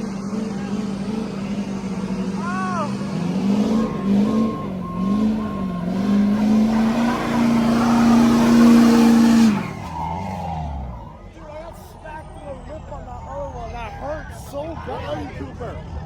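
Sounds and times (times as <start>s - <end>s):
truck engine revving hard: 0.0s - 11.4s
tires spinning: 0.0s - 16.0s.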